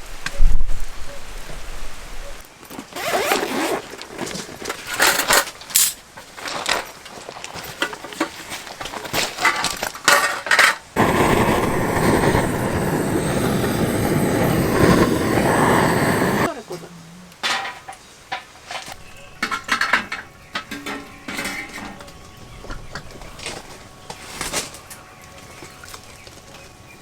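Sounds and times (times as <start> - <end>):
steady rushing noise: 11.0 - 16.5.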